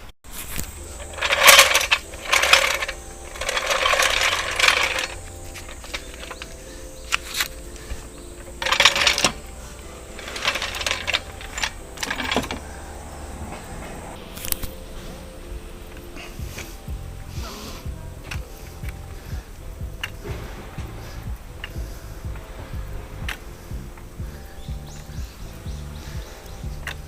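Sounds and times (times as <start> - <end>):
low steady hum: 0.0 - 27.0
metal hand tools clinking: 0.4 - 13.3.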